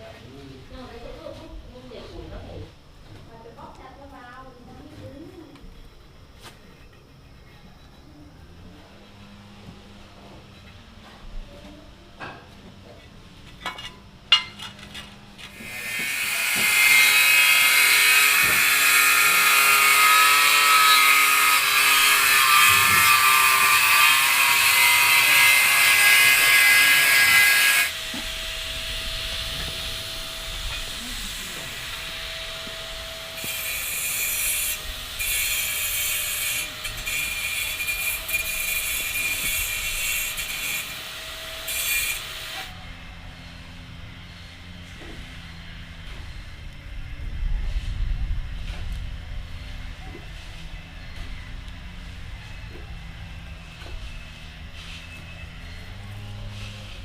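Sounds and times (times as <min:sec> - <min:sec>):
power tool grinding: 0:14.5 - 0:46.3.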